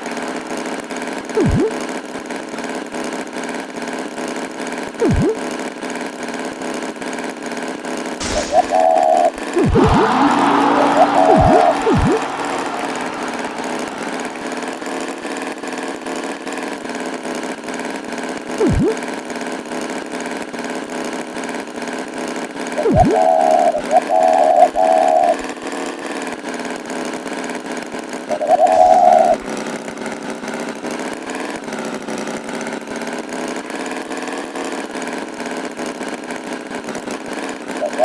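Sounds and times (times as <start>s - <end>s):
cartoon tractor engine drone: 1.4s - 1.8s, 5.0s - 5.5s, 8.2s - 16.1s, 18.6s - 19.1s, 22.8s - 25.4s, 28.3s - 29.5s
swooping sound effects: 1.4s - 1.8s, 5.0s - 5.4s, 8.2s - 15.4s, 18.6s - 19.0s, 28.5s - 29.4s.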